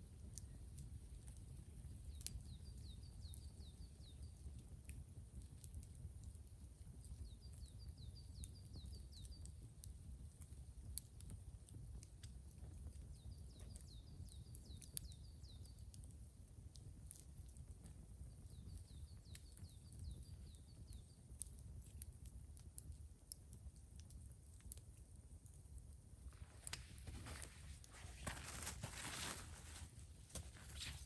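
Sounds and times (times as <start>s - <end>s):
small bird singing: 2.0s - 4.4s, 13.2s - 15.8s.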